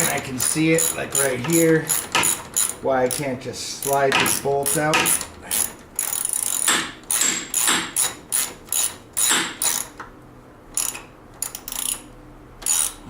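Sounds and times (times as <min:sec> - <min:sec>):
socket ratchet clicking: 0:00.0 - 0:10.1, 0:10.7 - 0:13.0.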